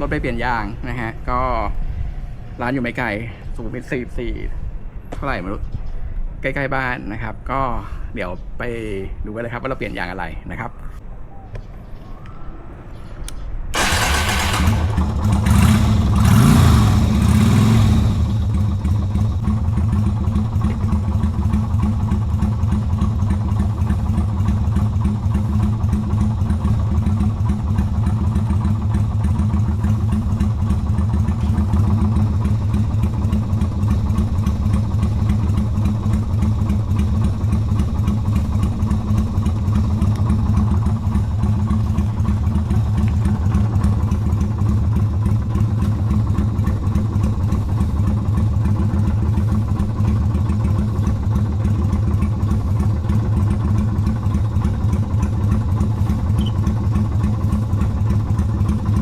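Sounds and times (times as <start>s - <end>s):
motorcycle engine running steadily: 0.0s - 4.0s, 13.8s - 59.0s.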